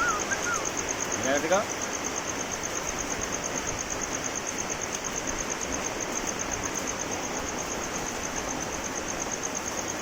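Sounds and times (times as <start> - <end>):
high thin pulsing chirp: 0.0 - 0.9
steady rain hiss: 0.0 - 10.0.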